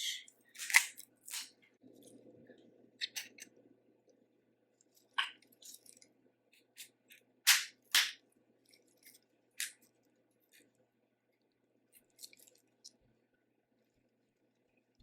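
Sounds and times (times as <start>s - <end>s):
seafood cracking and snapping: 0.5s - 1.7s, 4.9s - 10.7s, 12.0s - 13.0s.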